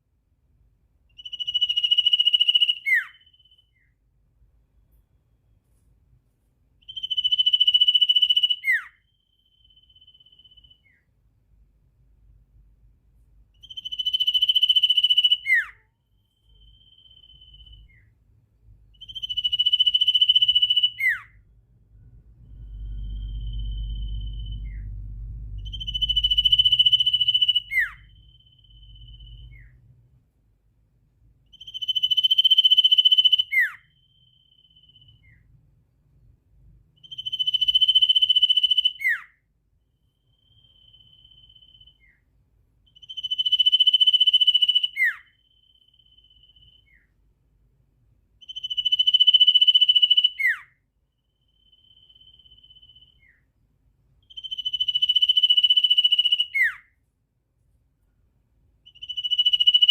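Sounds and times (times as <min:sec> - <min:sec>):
bird shrill buzzy trill: 0:01.1 - 0:04.0, 0:06.8 - 0:11.1, 0:13.6 - 0:18.2, 0:19.0 - 0:29.9, 0:31.5 - 0:35.5, 0:37.0 - 0:42.3, 0:42.9 - 0:47.2, 0:48.4 - 0:53.5, 0:54.2 - 0:57.0, 0:58.8 - 0:59.9
low rumble: 0:21.5 - 0:30.2.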